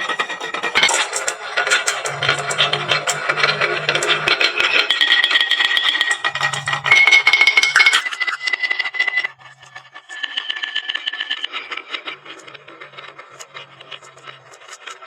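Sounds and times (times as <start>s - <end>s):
steady ringing tone: 2.0s - 11.2s.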